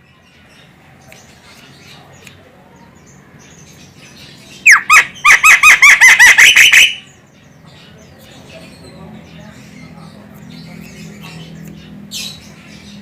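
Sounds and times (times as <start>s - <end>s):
myna calling: 4.6s - 7.2s.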